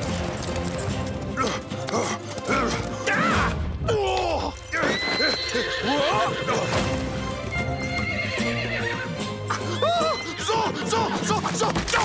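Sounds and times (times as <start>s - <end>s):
horse hoofbeats galloping: 0.0s - 3.4s
dramatic orchestral music: 0.0s - 12.0s
horse neighing: 4.8s - 11.4s.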